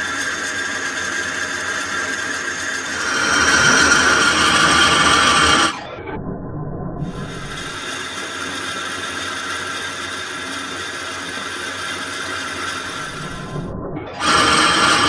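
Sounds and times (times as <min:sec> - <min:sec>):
metal lathe running: 0:00.2 - 0:05.9, 0:09.4 - 0:15.0.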